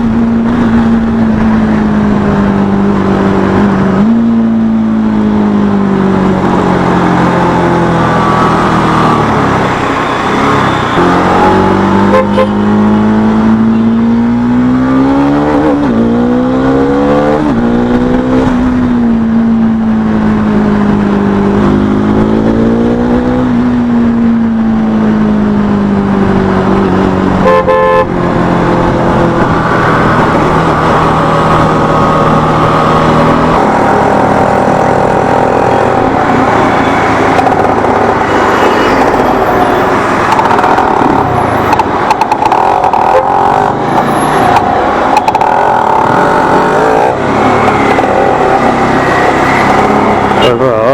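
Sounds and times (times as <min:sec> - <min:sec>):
short horn toot: 0:12.1 - 0:12.6, 0:27.4 - 0:28.1.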